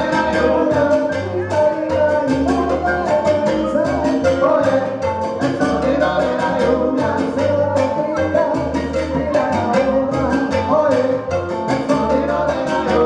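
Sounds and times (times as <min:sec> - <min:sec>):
live salsa band playing: 0:00.0 - 0:13.0.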